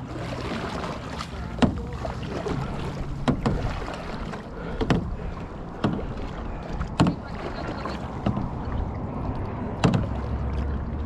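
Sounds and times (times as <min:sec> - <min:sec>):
paddle splashing into water: 0:00.0 - 0:11.0
rush of wind and water: 0:00.0 - 0:11.0.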